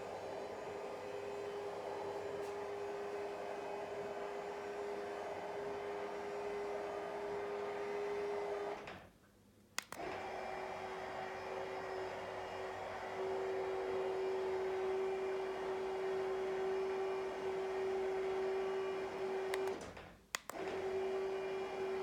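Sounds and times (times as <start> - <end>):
roller blind motor humming: 0.0 - 8.9, 10.0 - 19.9, 20.6 - 22.0
sharp click: 9.8 - 10.0, 19.5 - 20.6.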